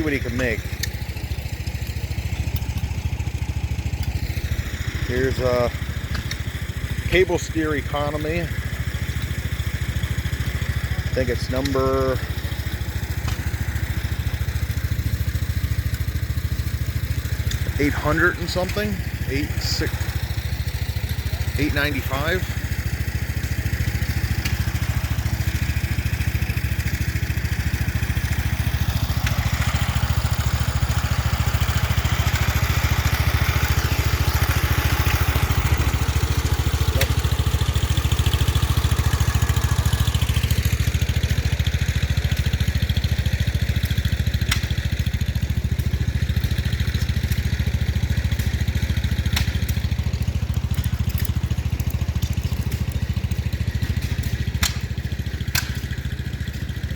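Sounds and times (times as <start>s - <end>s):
small engine idling: 0.0s - 56.9s.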